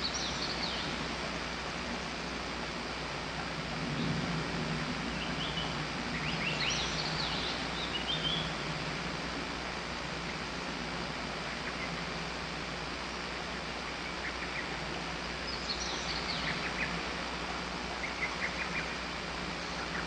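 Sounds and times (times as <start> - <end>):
bird chirping: 0.0 - 1.0, 5.2 - 8.6, 15.5 - 17.0
background hiss: 0.0 - 20.0
low hum: 0.0 - 20.0.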